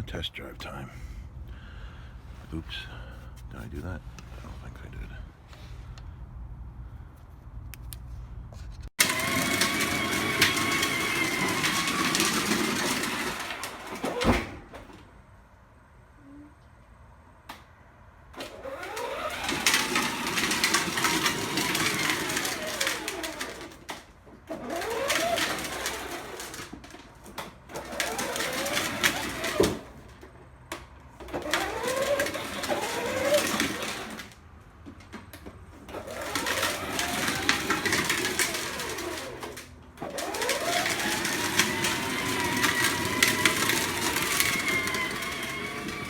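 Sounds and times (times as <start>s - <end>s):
road noise: 0.0s - 46.0s
car whine: 0.4s - 46.0s.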